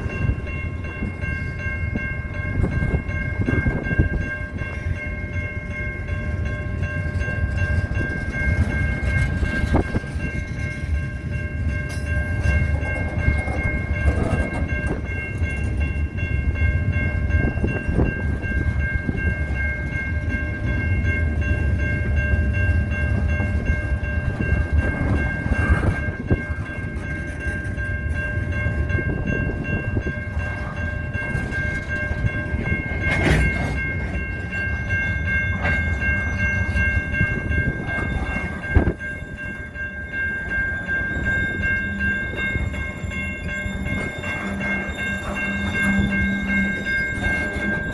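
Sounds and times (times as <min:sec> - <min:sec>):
wind on microphone: 0:00.0 - 0:04.9, 0:07.1 - 0:11.3, 0:12.4 - 0:16.6, 0:23.1 - 0:27.8, 0:28.6 - 0:34.4, 0:36.6 - 0:39.7.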